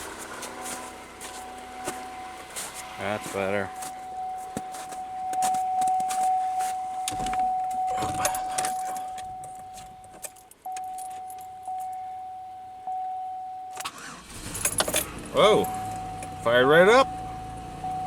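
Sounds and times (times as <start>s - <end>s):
electronic warning chime: 0.5s - 14.0s, 15.5s - 18.0s
car keys jangling: 3.8s - 16.4s.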